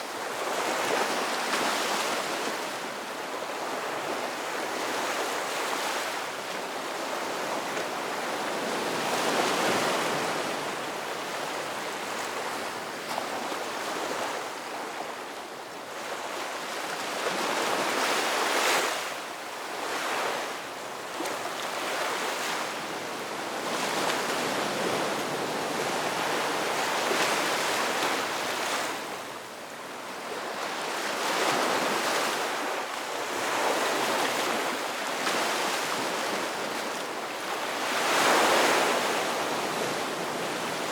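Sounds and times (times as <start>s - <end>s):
ocean waves breaking on shore: 0.0s - 40.9s.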